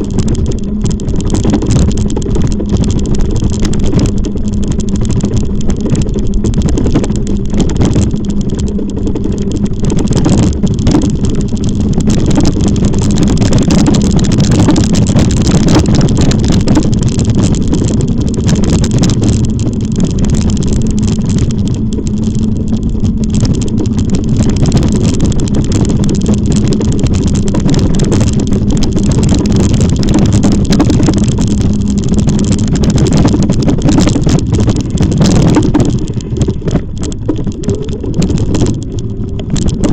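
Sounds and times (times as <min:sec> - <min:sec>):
e-bike riding rumble and hum: 0:00.0 - 0:39.9.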